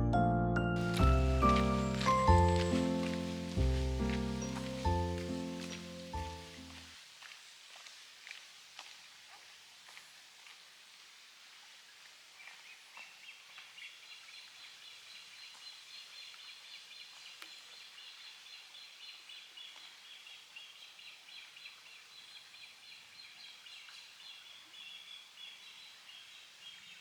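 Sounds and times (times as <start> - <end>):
small birds twittering: 0.8 - 6.8
outdoor hiss: 0.8 - 20.3.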